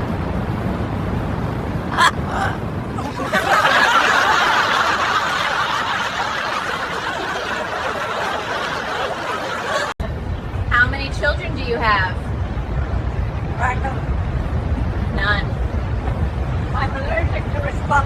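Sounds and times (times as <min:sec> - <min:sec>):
laughter: 0:03.0 - 0:10.2.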